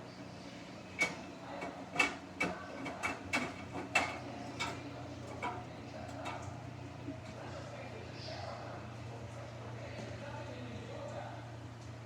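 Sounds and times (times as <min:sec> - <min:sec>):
washing machine low hum: 0:00.7 - 0:07.4.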